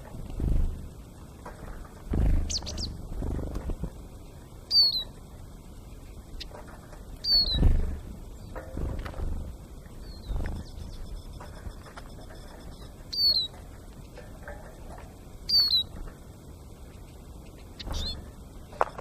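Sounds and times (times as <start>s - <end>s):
loud low thuds: 2.1s - 3.8s
high bird calls: 2.2s - 3.4s, 4.6s - 5.3s, 7.2s - 8.8s, 10.0s - 13.8s, 15.4s - 16.0s, 16.9s - 18.4s.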